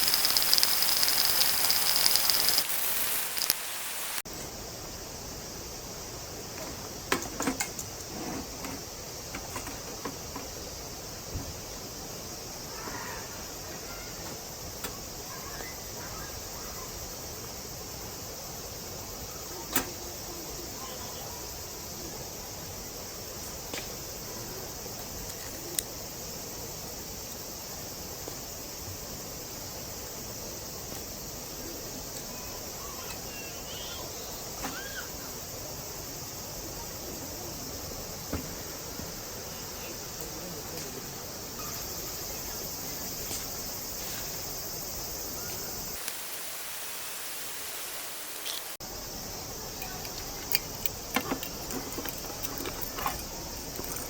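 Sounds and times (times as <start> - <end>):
small clicks: 0.0 - 4.2, 48.4 - 48.8
background hiss: 0.0 - 54.0
insects chirring: 0.0 - 54.0.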